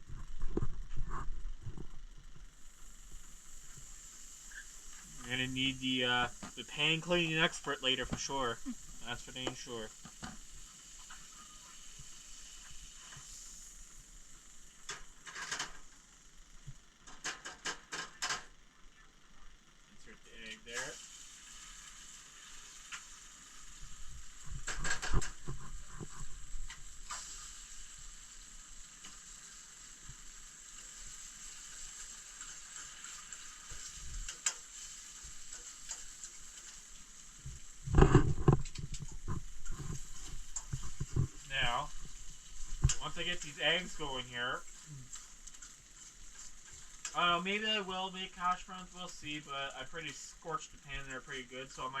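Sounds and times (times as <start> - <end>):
butter sizzling in a frying pan: 0.0 - 19.8, 20.5 - 52.0
utensil rasping in a pan: 2.5 - 16.3, 20.6 - 52.0.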